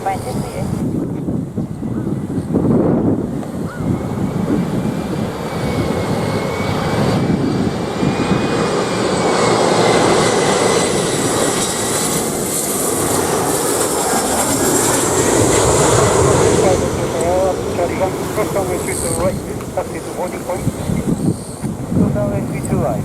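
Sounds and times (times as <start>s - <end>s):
jet airliner engines rumbling: 0.0s - 23.0s.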